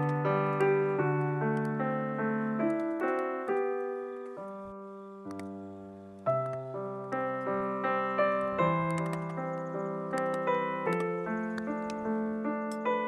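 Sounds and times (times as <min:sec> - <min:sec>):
slow solo piano melody: 0:00.0 - 0:13.0.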